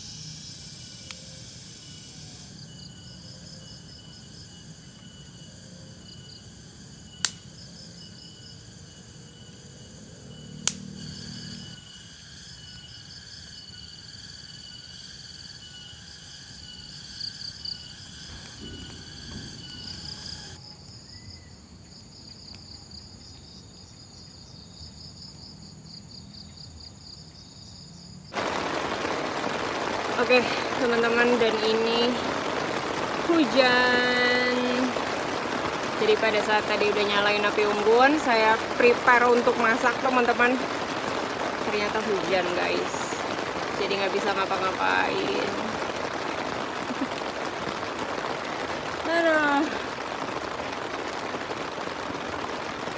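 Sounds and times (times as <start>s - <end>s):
heavy rain hiss: 0.0s - 20.6s, 28.1s - 52.9s
insects chirring with pulsing trill: 0.0s - 52.9s
sharp snaps: 7.2s - 7.5s, 10.6s - 10.8s.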